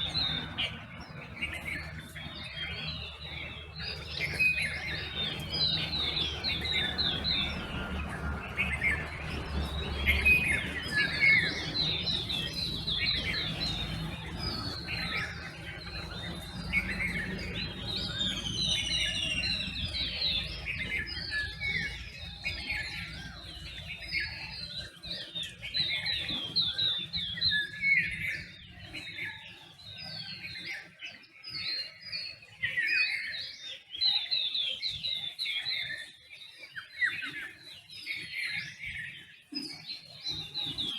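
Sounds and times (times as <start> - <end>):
steady low hum: 0.0 - 24.0
birds chirping and calling: 0.0 - 40.9.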